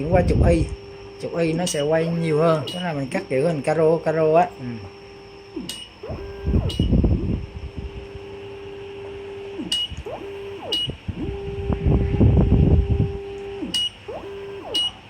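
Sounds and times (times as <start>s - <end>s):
servo motor whine: 0.0s - 15.0s
sharp clicks: 9.6s - 11.0s
short high beep: 14.7s - 15.0s.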